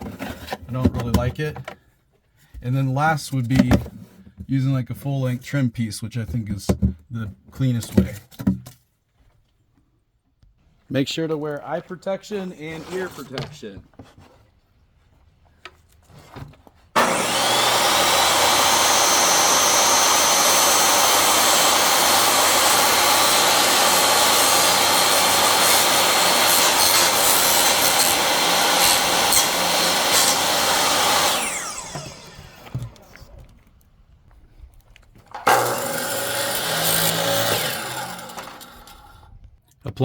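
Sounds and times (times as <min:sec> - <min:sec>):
electric power saw cutting wood: 0:17.0 - 0:33.2, 0:35.4 - 0:39.2.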